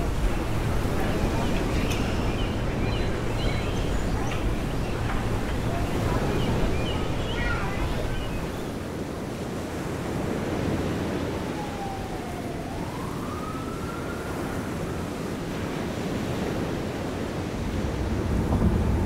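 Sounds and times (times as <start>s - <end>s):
ocean surf: 0.0s - 19.0s
wind: 0.0s - 19.0s
faint siren wail: 10.5s - 19.0s.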